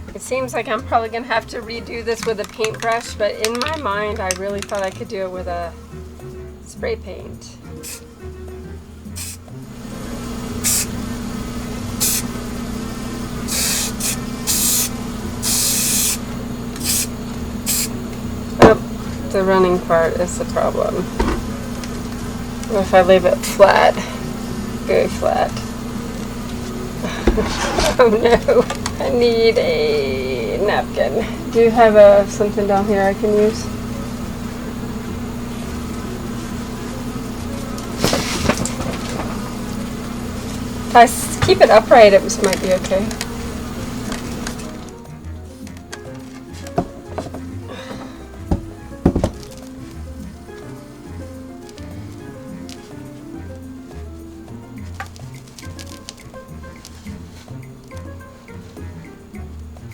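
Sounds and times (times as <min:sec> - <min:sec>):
steady low hum: 0:00.0 - 0:59.9
spray paint can hissing: 0:07.8 - 0:08.1, 0:09.2 - 0:09.4, 0:10.6 - 0:11.0, 0:12.0 - 0:12.3, 0:13.4 - 0:18.0.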